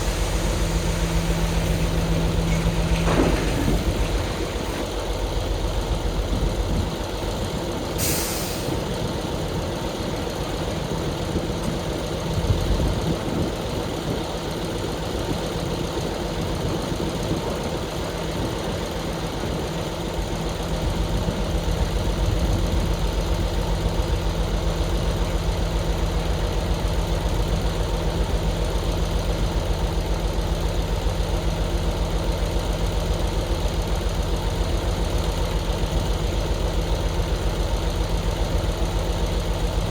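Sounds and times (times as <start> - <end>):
air hissing: 0.0 - 4.8
heavy diesel engine running: 0.0 - 39.9.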